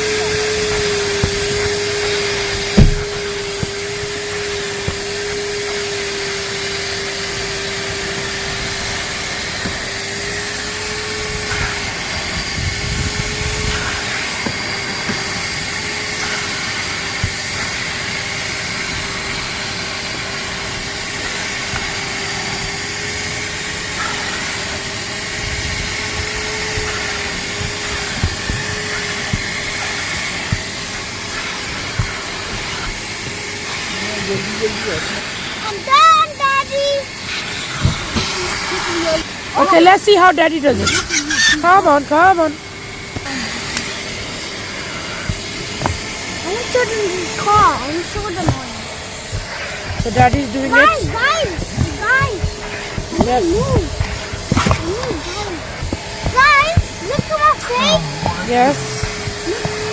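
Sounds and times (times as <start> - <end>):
vacuum cleaner running: 0.0 - 59.9
sharp knock: 2.7 - 3.7.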